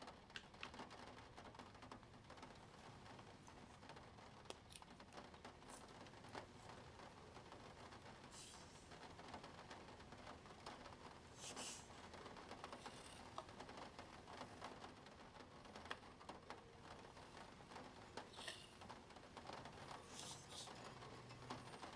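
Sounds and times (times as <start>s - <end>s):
pen scratching on paper: 11.4s - 11.9s.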